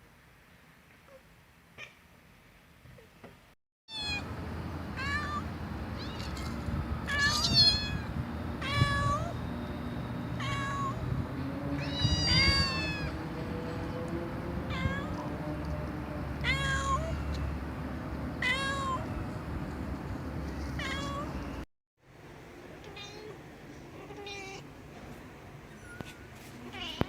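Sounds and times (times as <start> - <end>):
cat meowing: 3.9 - 4.2, 5.0 - 6.5, 7.1 - 9.4, 10.4 - 11.0, 11.8 - 13.2, 14.7 - 15.2, 16.4 - 17.2, 20.8 - 21.3, 22.8 - 24.6, 26.6 - 27.0.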